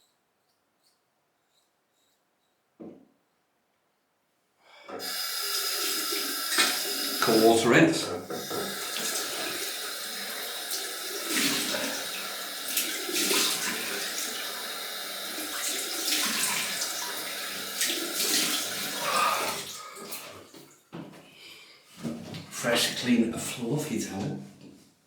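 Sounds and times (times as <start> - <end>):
tap water running into sink: 4.9 - 20.7
water splashing on face: 5.0 - 7.6, 8.3 - 20.5.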